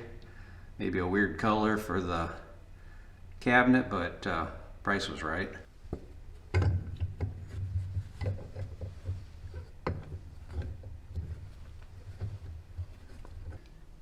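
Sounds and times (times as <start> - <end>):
steady low hum: 0.0 - 14.0
hands working with tools: 5.9 - 14.0.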